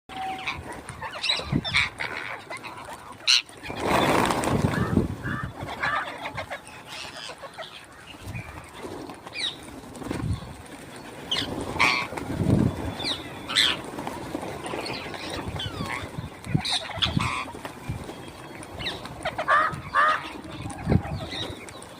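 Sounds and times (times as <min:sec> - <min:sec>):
parrots calling: 0:00.2 - 0:03.8, 0:04.8 - 0:08.0, 0:15.2 - 0:17.5, 0:19.2 - 0:21.5.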